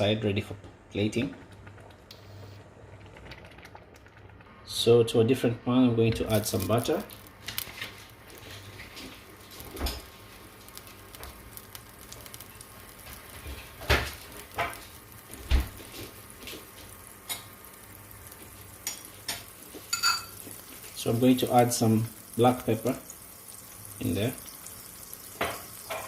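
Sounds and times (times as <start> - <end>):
butter sizzling in a pan: 6.3 - 26.0.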